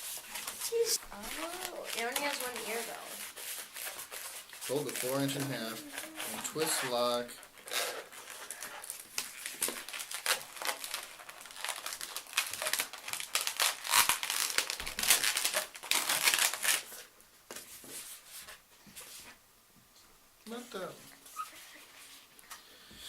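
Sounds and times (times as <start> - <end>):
balloon rubber rubbing and crinkling: 0.0 - 17.1.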